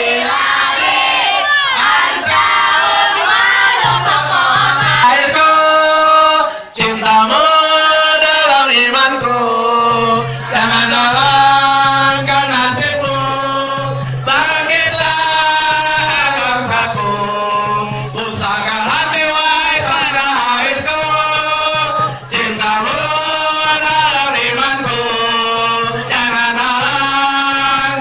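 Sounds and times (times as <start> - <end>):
voices singing a chant: 0.0 - 28.0.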